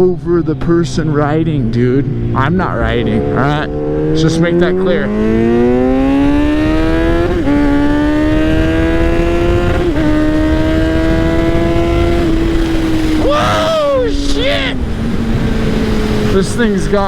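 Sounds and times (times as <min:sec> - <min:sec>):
motorcycle engine accelerating: 0:00.0 - 0:17.0
wind noise on microphone: 0:05.0 - 0:16.5.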